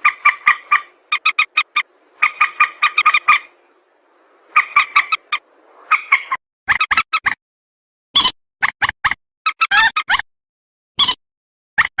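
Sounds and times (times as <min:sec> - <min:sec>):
rail bird call notes: 0:00.0 - 0:03.9.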